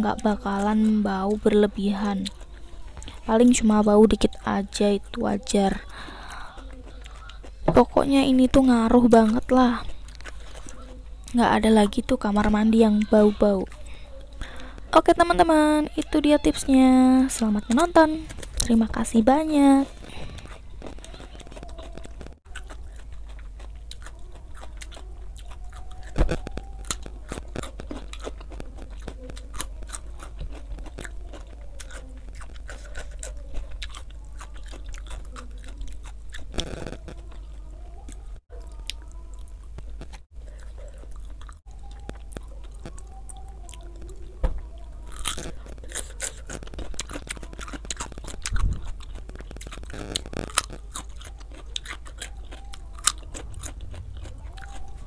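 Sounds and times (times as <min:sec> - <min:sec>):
person chewing and crunching food: 0:00.0 - 0:55.0
crunchy cucumber bites: 0:17.3 - 0:37.4, 0:45.1 - 0:55.0.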